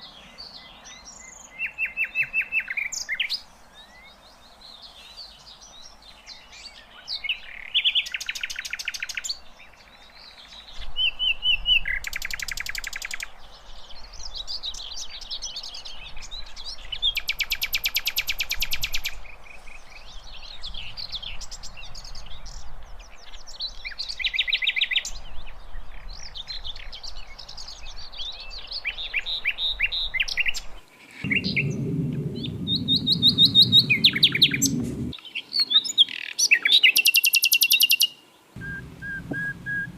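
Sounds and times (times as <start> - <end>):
low rumble: 31.1 - 35.2, 38.6 - 39.9
bird singing chirps and whistles: 31.2 - 39.9.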